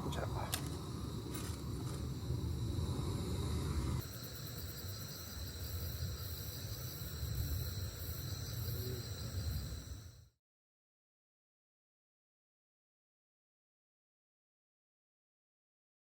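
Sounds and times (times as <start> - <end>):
low background rumble: 0.0 - 4.0
crickets chirping: 0.0 - 10.4.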